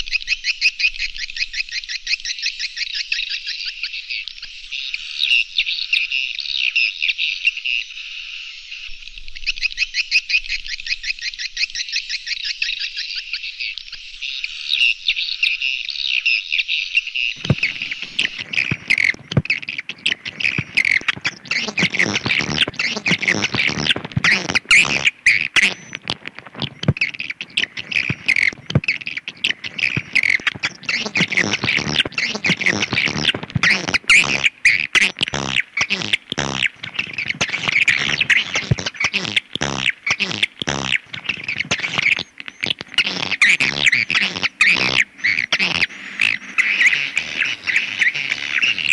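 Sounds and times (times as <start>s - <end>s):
high-pitched bird chirps: 17.4s - 48.9s
sharp clicks: 17.4s - 48.9s.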